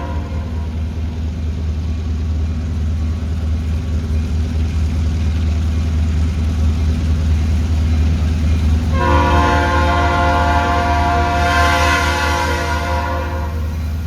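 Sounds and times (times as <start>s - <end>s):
train horn blasts: 0.0s - 0.9s, 8.9s - 13.8s
diesel locomotive engine rumbling: 0.0s - 14.0s.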